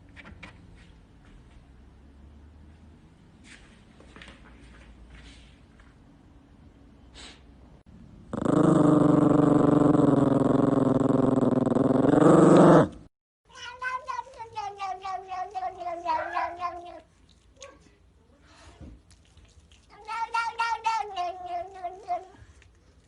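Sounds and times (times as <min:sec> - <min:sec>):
cat yowling: 0:13.6 - 0:17.1.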